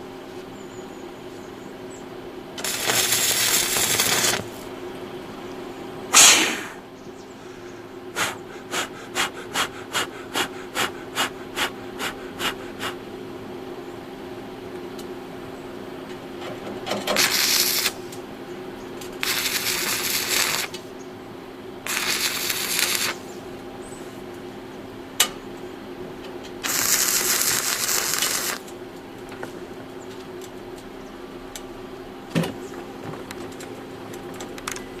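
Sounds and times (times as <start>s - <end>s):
steady hum: 0.0s - 35.0s
welding arc crackling: 2.6s - 4.7s, 17.0s - 18.2s, 19.0s - 20.9s, 21.8s - 23.4s, 26.6s - 28.7s.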